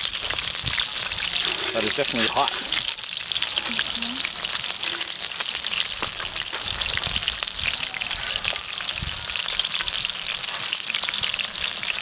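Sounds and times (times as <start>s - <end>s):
pops and crackles: 0.0s - 7.8s
food frying sizzle: 0.0s - 12.0s.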